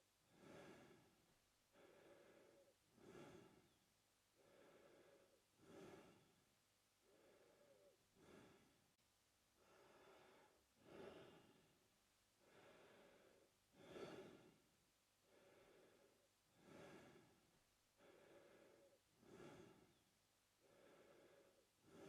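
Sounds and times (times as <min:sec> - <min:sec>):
man breathing through mouth: 0:00.4 - 0:01.1, 0:01.7 - 0:03.8, 0:04.4 - 0:06.4, 0:07.0 - 0:08.8, 0:09.6 - 0:11.7, 0:12.4 - 0:14.6, 0:15.3 - 0:17.3, 0:18.0 - 0:20.0.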